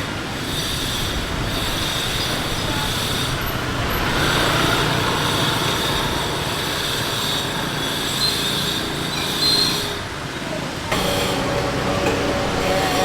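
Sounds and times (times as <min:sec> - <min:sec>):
loud rushing noise: 0:10.9 - 0:13.0.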